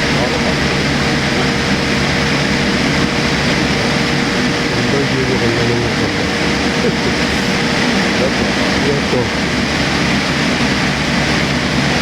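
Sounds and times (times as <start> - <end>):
airliner cabin jet engine rush: 0.0 - 12.0.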